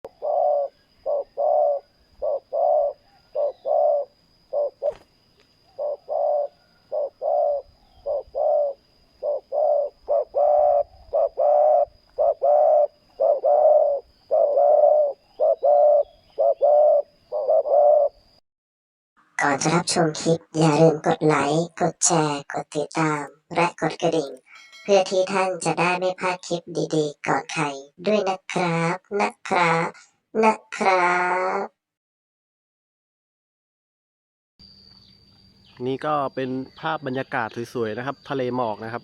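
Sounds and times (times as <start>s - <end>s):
dove cooing: 0.0s - 18.4s.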